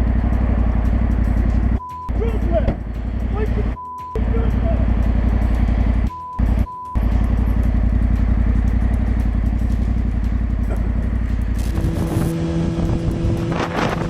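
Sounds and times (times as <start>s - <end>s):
motorcycle engine running: 0.0s - 14.0s
short high beeps: 1.8s - 2.2s, 3.8s - 4.2s, 6.1s - 7.0s.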